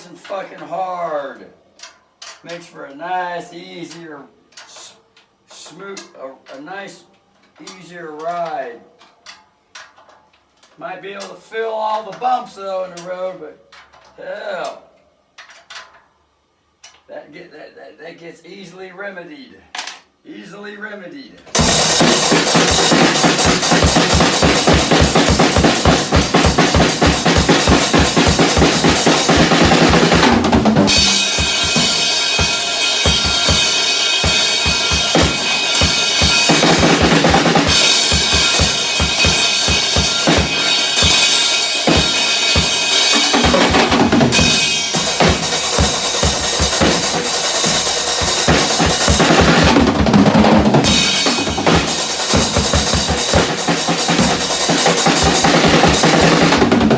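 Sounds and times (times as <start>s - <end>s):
bass drum strokes: 21.6s - 56.9s
snare drum hits: 21.6s - 56.9s
ringing cymbals: 30.9s - 43.5s.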